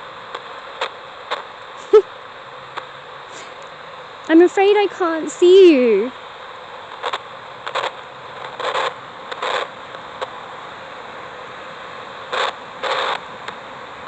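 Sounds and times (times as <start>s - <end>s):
steady background hiss: 0.0s - 14.0s
radio static bursts: 6.9s - 10.4s, 12.2s - 13.3s.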